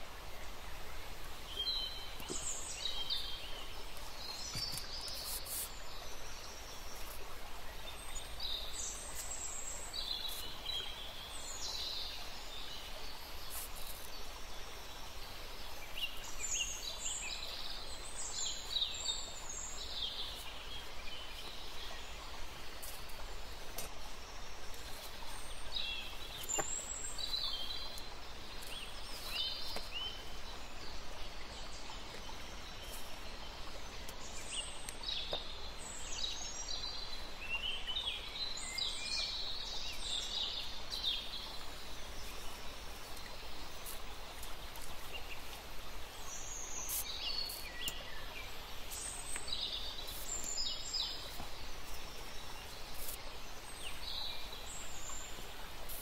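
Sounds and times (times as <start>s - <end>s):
small birds chirping: 0.0s - 56.0s
steady background hiss: 0.0s - 56.0s.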